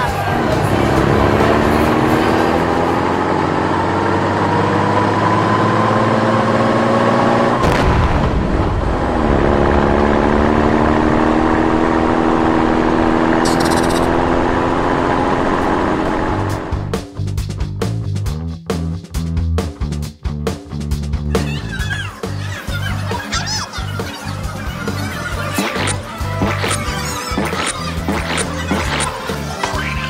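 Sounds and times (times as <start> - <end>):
vehicle engine accelerating: 0.0 - 18.0.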